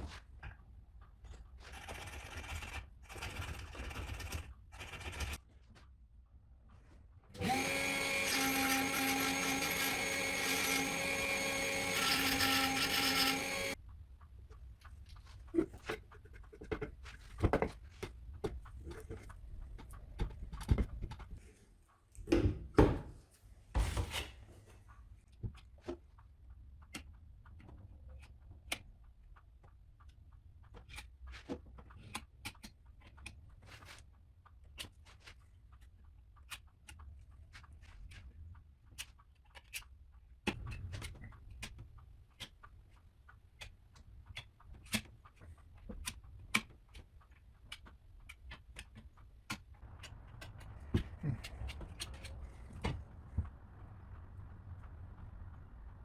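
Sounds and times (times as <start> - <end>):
power tool running: 7.4 - 13.8.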